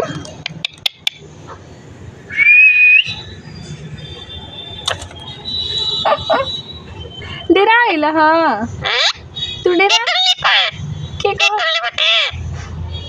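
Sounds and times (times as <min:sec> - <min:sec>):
parrot whistle: 0:02.3 - 0:03.5.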